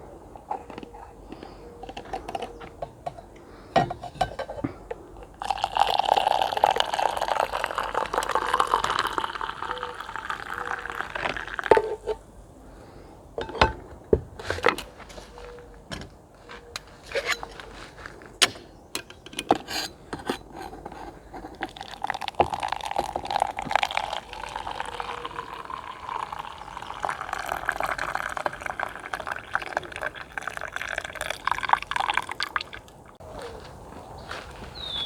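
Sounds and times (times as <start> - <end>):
handling clicks and knocks: 0.4 - 5.1, 18.4 - 21.7
liquid pouring into container: 5.4 - 11.7, 21.6 - 33.2.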